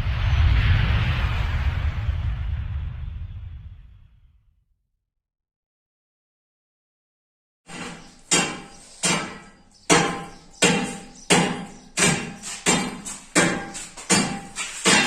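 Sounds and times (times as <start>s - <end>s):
hammer blows ringing: 7.7s - 15.0s.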